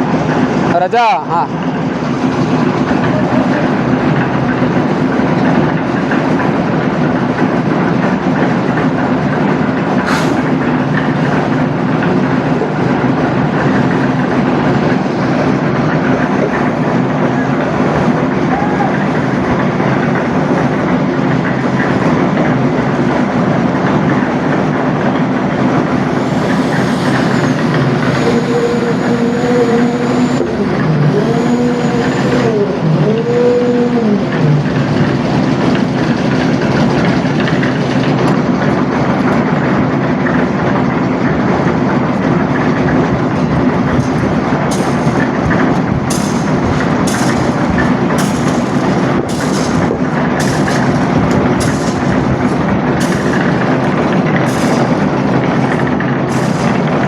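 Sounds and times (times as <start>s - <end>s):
construction machine engine drone: 0.0s - 57.0s
rising and falling tones: 25.8s - 34.3s.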